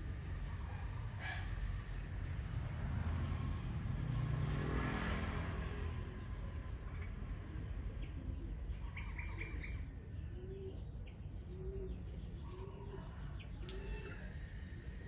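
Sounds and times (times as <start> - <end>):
low cooing bird call: 7.5 - 15.0.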